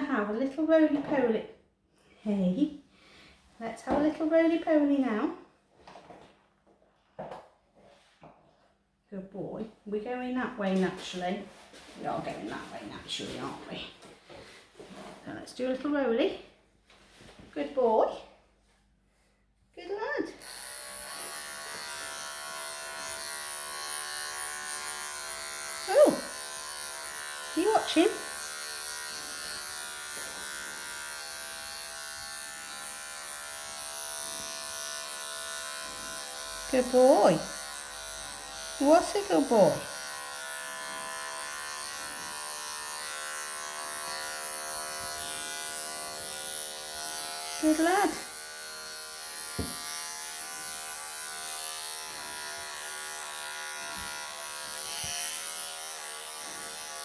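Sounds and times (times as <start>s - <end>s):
electric clippers buzzing: 20.4s - 57.0s.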